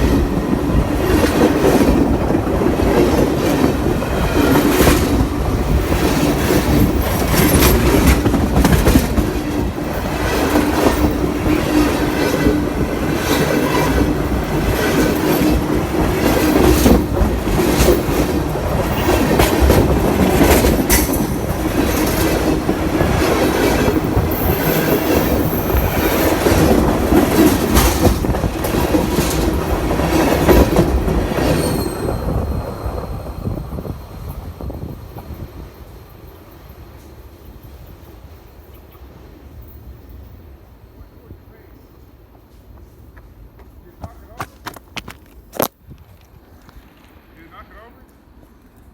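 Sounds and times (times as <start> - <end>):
train wheels clacking over rail: 0.0 - 33.1
steady train rumble: 0.0 - 48.9.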